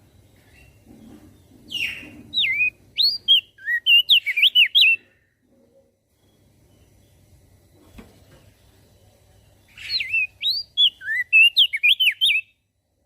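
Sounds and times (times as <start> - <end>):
faint low hum: 0.0 - 11.8, 12.4 - 13.0
bird whistling song: 1.7 - 5.2, 9.7 - 12.6.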